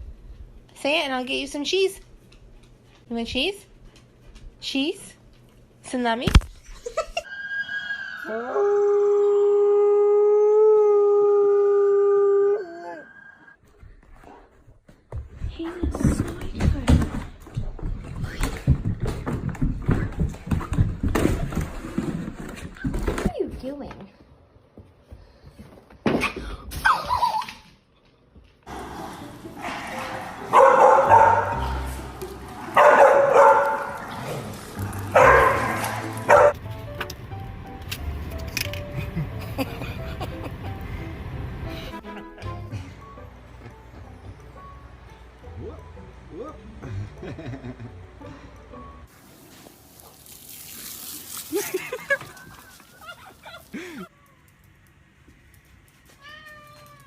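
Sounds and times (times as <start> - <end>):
dog barking: 29.6 - 31.9, 32.7 - 34.1, 35.1 - 36.6.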